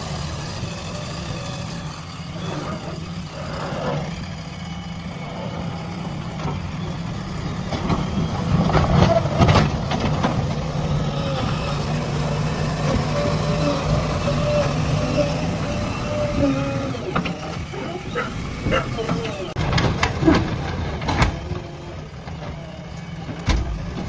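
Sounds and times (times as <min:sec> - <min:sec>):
heavy diesel engine running: 0:00.0 - 0:24.0
sharp knocks and clatter: 0:18.7 - 0:22.6.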